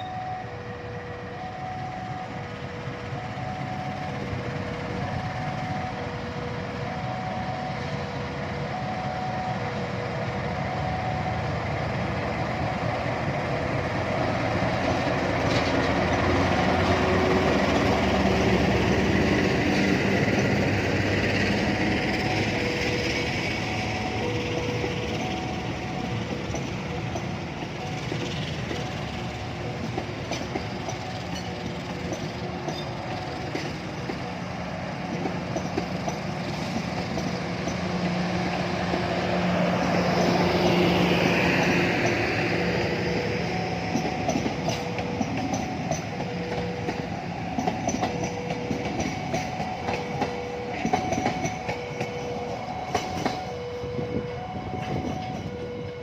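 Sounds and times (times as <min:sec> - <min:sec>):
train wheels clacking on rails: 0:09.5 - 0:56.0.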